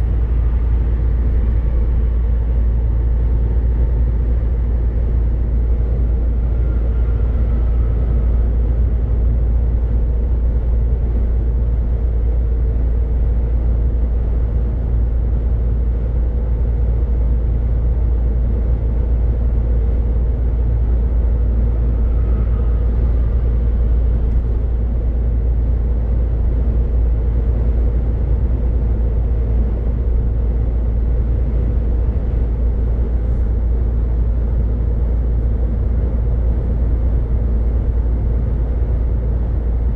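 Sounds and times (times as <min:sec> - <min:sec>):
truck engine drone: 0:00.0 - 0:39.9
road noise: 0:18.0 - 0:39.9.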